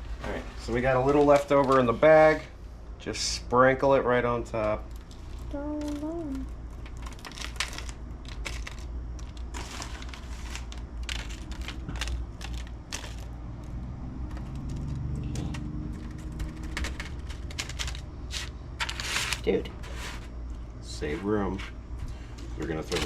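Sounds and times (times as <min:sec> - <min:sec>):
crunchy coating crackling: 0:00.0 - 0:02.5, 0:04.3 - 0:23.0
plastic bag rustling: 0:05.1 - 0:20.4.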